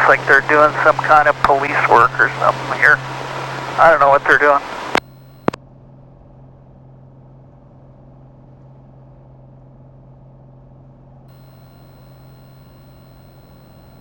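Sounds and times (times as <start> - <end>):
faint high whine: 0.0 - 5.6, 11.3 - 14.0
propeller engine droning: 0.0 - 5.6, 11.3 - 14.0.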